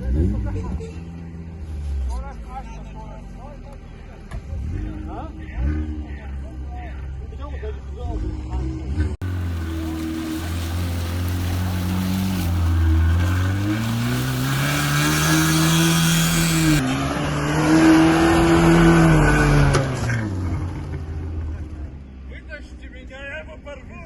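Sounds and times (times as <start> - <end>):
off-road engine revving hard: 4.5 - 6.2, 8.2 - 21.4.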